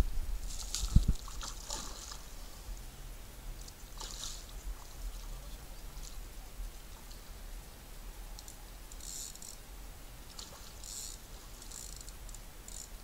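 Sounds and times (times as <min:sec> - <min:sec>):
fish splashing at water surface: 0:00.5 - 0:02.3.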